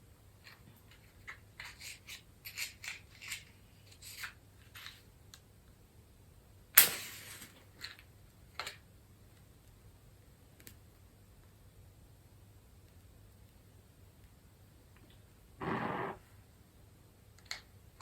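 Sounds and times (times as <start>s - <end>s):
match striking and flaring: 6.8s - 7.6s.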